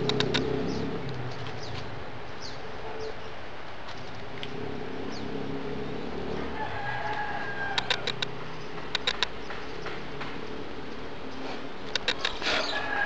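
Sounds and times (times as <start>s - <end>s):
sharp clicks: 0.0s - 1.6s, 7.1s - 10.4s, 11.8s - 12.4s
birds chirping: 0.0s - 13.0s.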